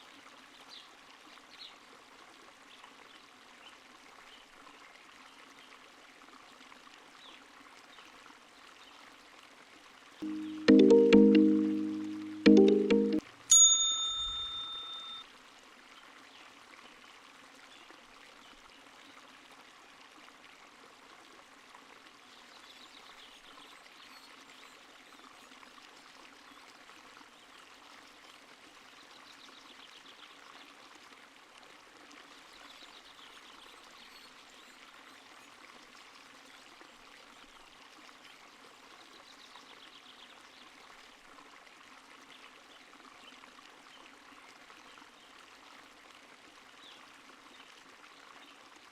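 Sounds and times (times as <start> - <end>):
stream trickling: 13.5 - 48.9.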